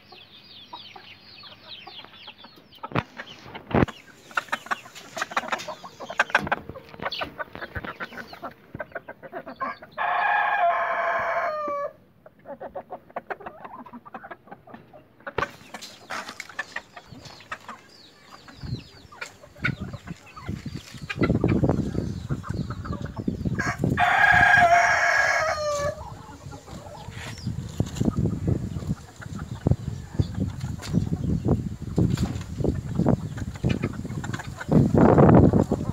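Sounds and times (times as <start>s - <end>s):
hens clucking: 0.0s - 35.9s
roosters crowing: 9.4s - 12.0s, 21.1s - 28.8s.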